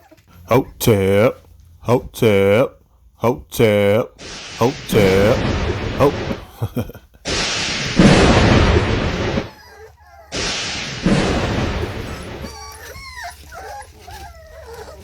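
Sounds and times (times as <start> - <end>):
noise rushing on phone microphone: 4.1 - 9.6, 10.3 - 12.6.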